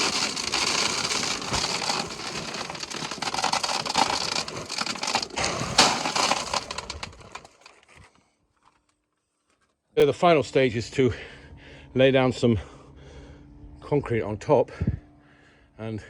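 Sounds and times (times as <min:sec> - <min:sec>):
gravel crunching and rattling: 0:00.0 - 0:08.9.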